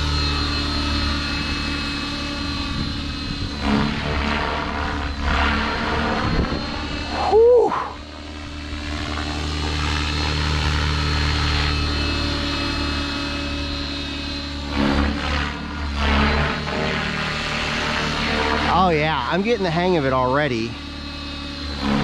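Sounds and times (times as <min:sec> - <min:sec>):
rc helicopter motor and rotor whine: 0:00.0 - 0:22.0
whistle-like gliding tone: 0:06.4 - 0:08.0.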